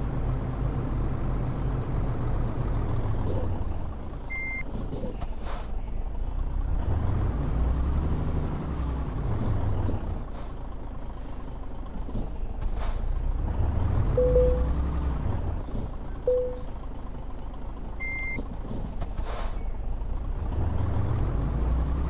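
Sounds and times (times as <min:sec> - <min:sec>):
truck diesel engine revving: 0:00.0 - 0:22.0
short beep: 0:14.2 - 0:14.8, 0:16.3 - 0:16.7.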